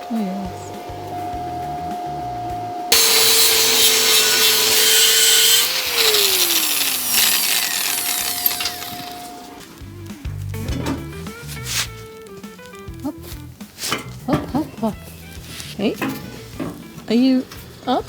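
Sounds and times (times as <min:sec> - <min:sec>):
angle grinder grinding metal: 0:00.7 - 0:09.8.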